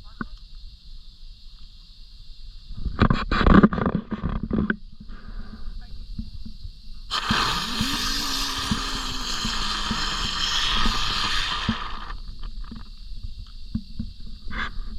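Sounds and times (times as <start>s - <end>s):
low whirring tone: 2.3s - 14.9s
firework crackles: 7.1s - 12.2s
firework hissing: 7.1s - 12.4s.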